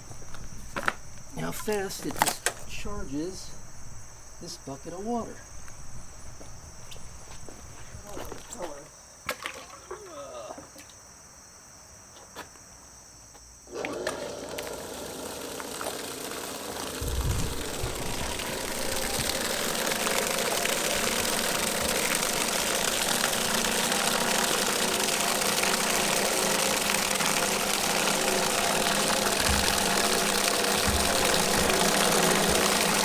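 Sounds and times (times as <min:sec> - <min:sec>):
pump motor humming: 0:13.7 - 0:33.0
water rushing: 0:15.5 - 0:33.0.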